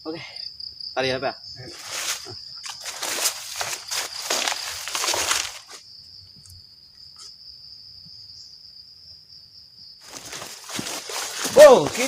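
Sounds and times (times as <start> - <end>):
cricket chirring: 0.0 - 12.0
loud rustling noise: 1.8 - 5.8, 10.1 - 12.0.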